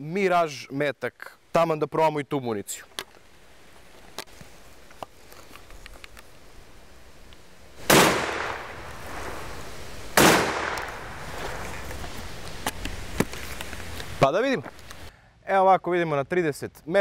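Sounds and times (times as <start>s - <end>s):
shotgun shots echoing: 7.8s - 9.2s, 10.2s - 11.3s.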